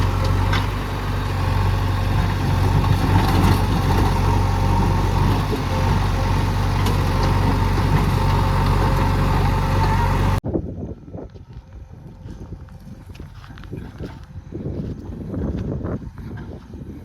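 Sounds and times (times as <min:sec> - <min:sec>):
heavy diesel engine running: 0:00.0 - 0:10.4.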